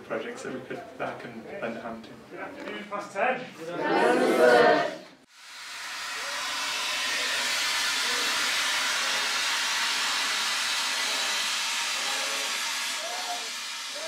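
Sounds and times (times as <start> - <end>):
fire extinguisher gas hissing: 5.3 - 14.0.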